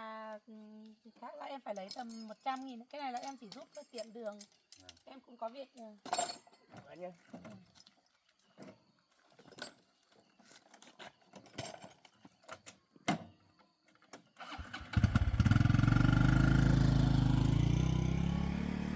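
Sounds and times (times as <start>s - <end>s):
motorbike engine starting and idling: 14.4s - 18.9s.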